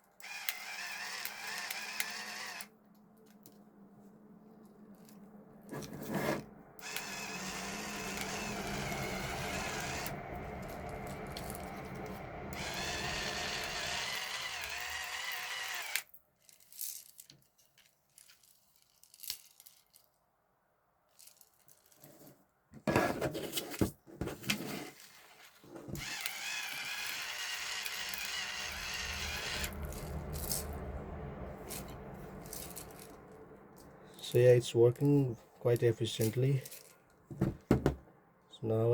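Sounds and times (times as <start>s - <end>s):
electric pepper grinder motor: 0.2s - 2.7s, 6.8s - 16.1s, 26.0s - 30.8s.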